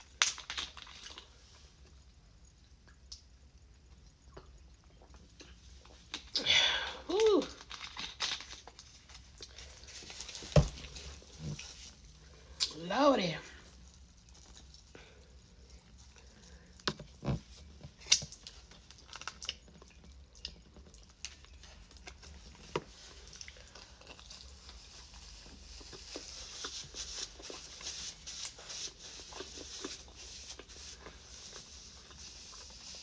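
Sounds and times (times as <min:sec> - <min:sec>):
chewing and wet mouth sounds: 0:00.0 - 0:06.4, 0:13.6 - 0:33.0.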